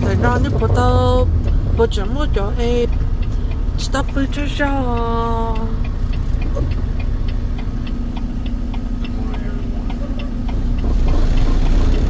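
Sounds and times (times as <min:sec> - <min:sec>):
truck engine rumbling: 0:00.0 - 0:12.0
indicator relay clicking: 0:00.2 - 0:12.0.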